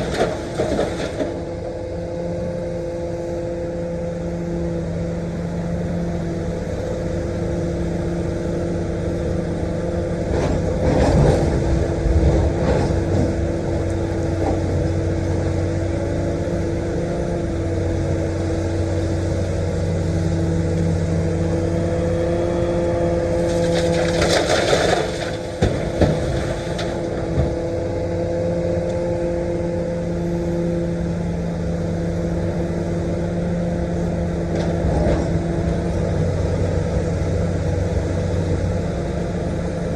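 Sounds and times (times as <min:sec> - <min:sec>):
scraping and clattering of rock: 0:00.0 - 0:01.4, 0:23.4 - 0:27.5
excavator diesel engine running: 0:00.0 - 0:39.9.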